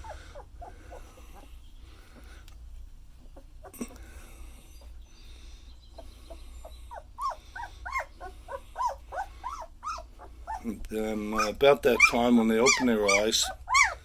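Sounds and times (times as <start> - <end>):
puppies whimpering and squeaking: 0.0 - 2.4, 3.1 - 14.0.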